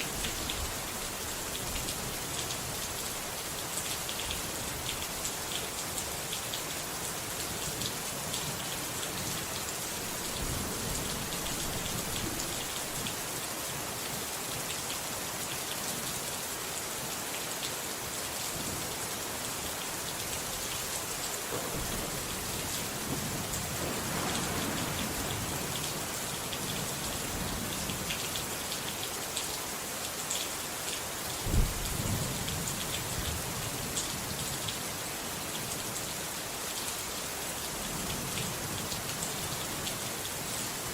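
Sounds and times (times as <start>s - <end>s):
steady rain falling: 0.0s - 40.9s
low thunder rumble: 10.1s - 13.1s, 21.5s - 26.7s
sharp thunder clap: 21.5s - 26.1s.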